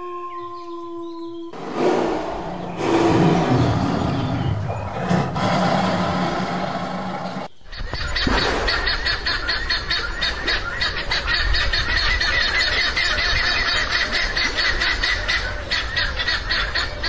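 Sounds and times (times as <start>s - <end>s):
lion vocalizing: 1.6s - 7.5s.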